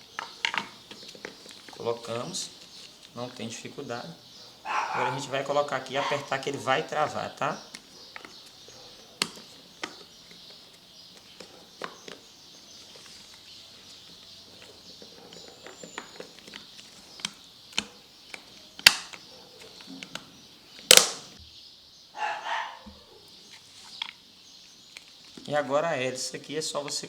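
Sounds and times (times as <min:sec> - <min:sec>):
sharp plastic snaps: 0:00.1 - 0:01.8, 0:07.7 - 0:12.2, 0:14.2 - 0:21.4.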